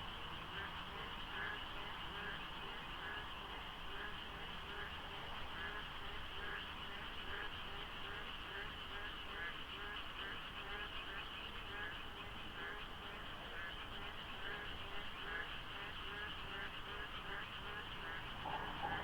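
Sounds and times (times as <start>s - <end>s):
chorus of frogs calling: 0.2s - 19.0s
faint low hum: 12.1s - 19.0s.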